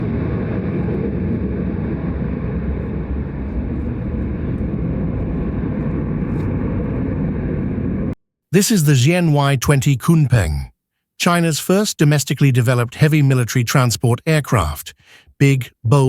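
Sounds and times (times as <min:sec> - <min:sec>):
aircraft turbofan engines rumbling: 0:00.0 - 0:08.2.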